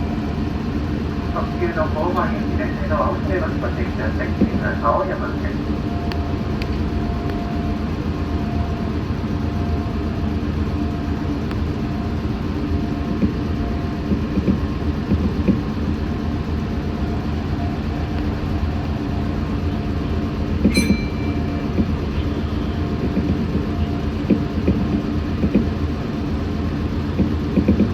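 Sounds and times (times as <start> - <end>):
faint steady hum: 14.9 - 27.9.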